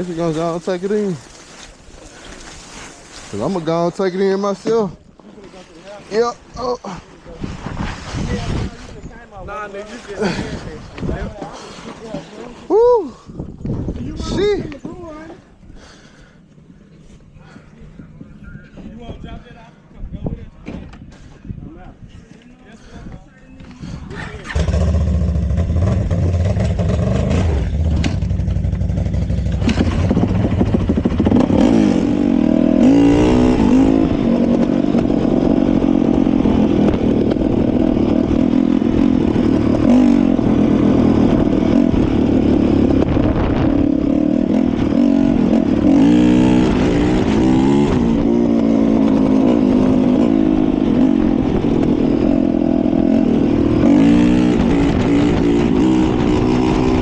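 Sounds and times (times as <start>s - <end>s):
dirt bike engine revving: 24.1s - 57.0s.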